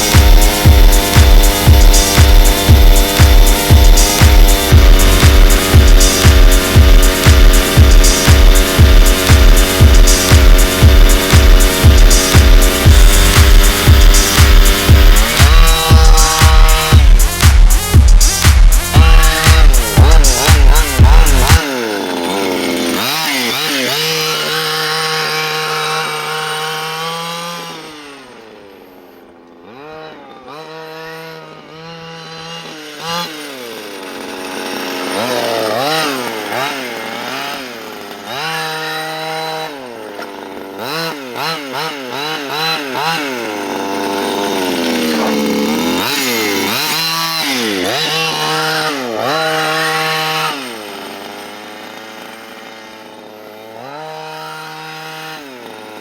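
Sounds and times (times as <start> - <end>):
two-stroke engine revving: 0.0 - 56.0.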